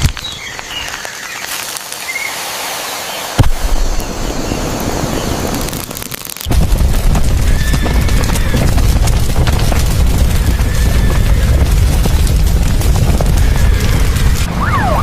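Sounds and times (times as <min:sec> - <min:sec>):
hissing noise: 0:01.4 - 0:08.6.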